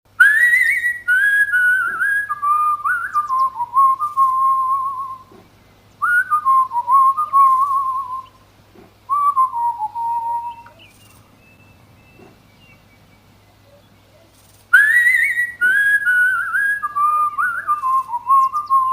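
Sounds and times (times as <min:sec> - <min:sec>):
person whistling: 0:06.0 - 0:08.3, 0:09.1 - 0:10.7, 0:14.8 - 0:18.9.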